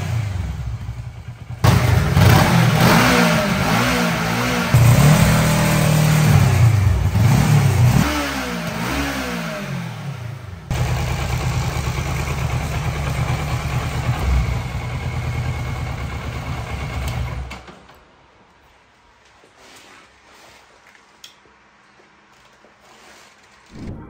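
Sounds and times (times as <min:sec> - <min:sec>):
motorcycle engine idling: 0:00.0 - 0:08.0, 0:08.9 - 0:17.5
motorcycle engine revving: 0:00.0 - 0:17.6.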